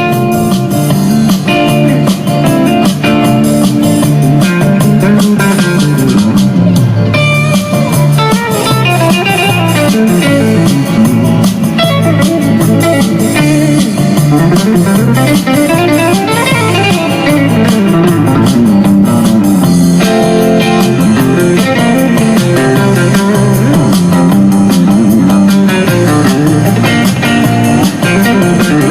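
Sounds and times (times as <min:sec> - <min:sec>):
blues electric guitar music: 0:00.0 - 0:28.9.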